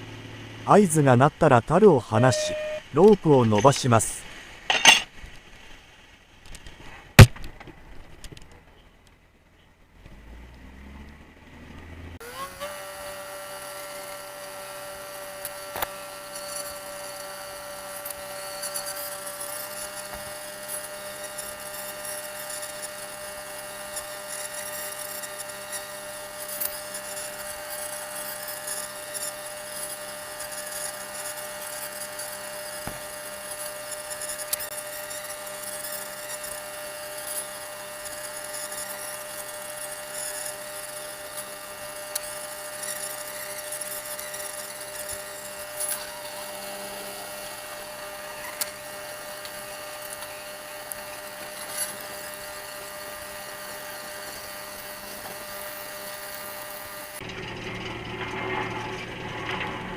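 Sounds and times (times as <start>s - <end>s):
boat machinery whining: 0.7s - 4.1s.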